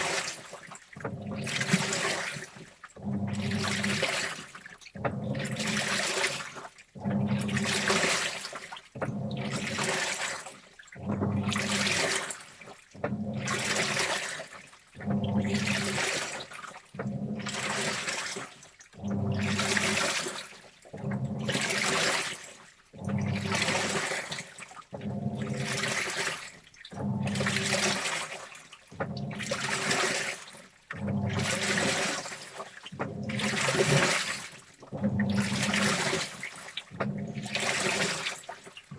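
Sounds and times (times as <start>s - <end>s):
washing machine sloshing: 0.0s - 38.9s
low motor hum: 19.0s - 19.8s, 21.0s - 21.6s, 27.0s - 27.9s.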